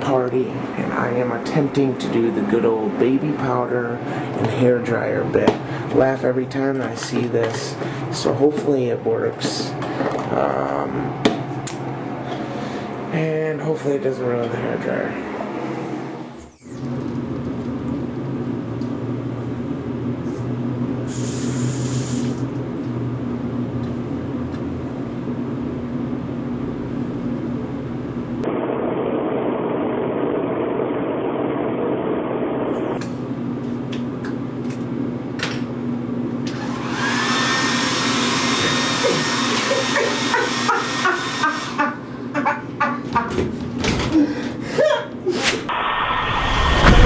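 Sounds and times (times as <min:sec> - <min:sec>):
hair dryer running: 0:36.5 - 0:41.8.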